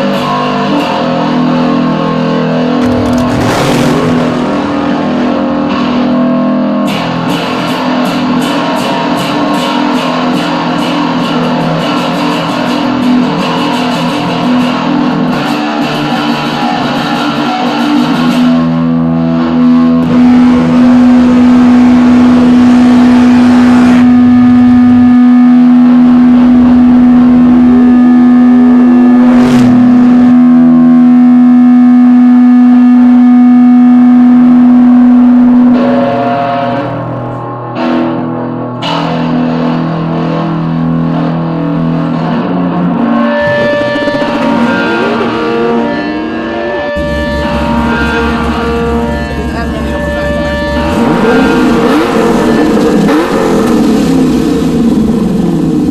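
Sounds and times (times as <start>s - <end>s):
distorted electric guitar: 0.0s - 55.9s.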